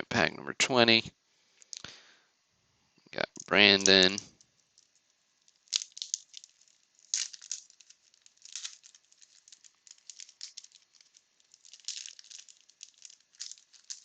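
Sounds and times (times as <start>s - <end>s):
wax-paper wrapper crinkling: 3.3s - 14.0s.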